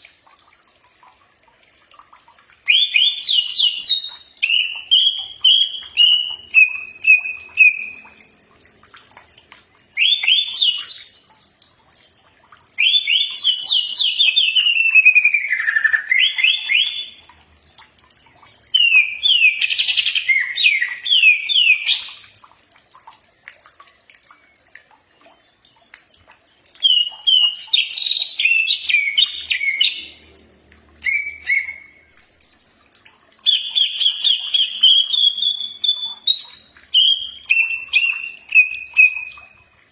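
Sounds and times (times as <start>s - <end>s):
bird chattering song: 31.1s - 32.0s, 33.5s - 39.3s.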